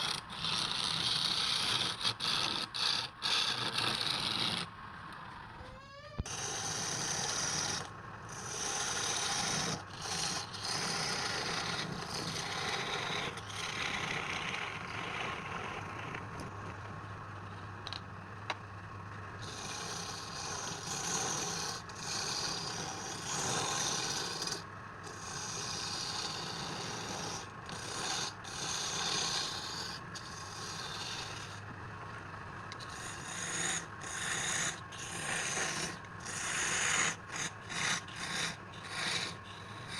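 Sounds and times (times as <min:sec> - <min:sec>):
faint motor hum: 0:00.0 - 0:39.9
lathe tool rasping wood: 0:06.3 - 0:16.2, 0:19.4 - 0:31.6, 0:32.8 - 0:39.9.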